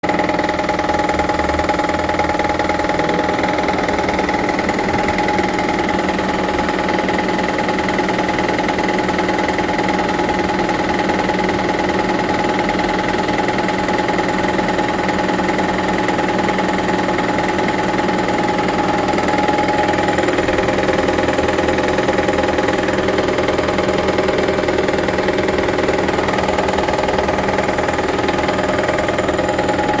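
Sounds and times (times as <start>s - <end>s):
car engine running: 0.0s - 30.0s
steady tones: 0.2s - 8.4s.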